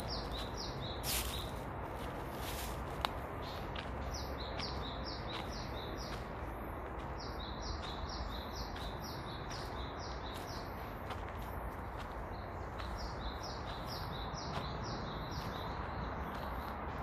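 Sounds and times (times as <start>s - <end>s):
songbird singing: 0.0s - 17.0s.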